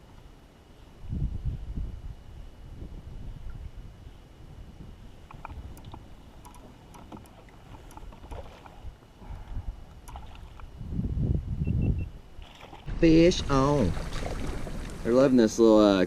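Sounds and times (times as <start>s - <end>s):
low water rumble: 2.7s - 16.0s
small clicks and ticks: 5.3s - 8.4s.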